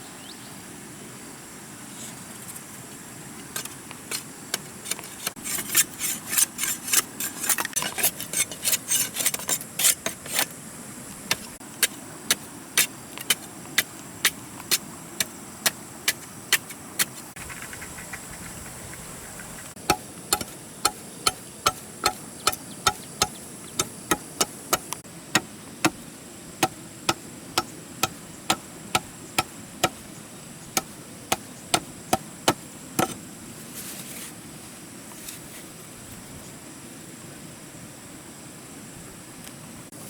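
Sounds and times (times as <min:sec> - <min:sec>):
hand tool striking: 0:19.8 - 0:26.0, 0:26.6 - 0:30.0, 0:30.8 - 0:33.2.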